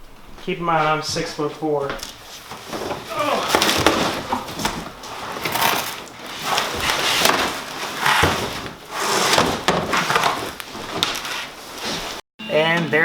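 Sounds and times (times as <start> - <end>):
cardboard rustling and scraping: 2.0 - 12.2.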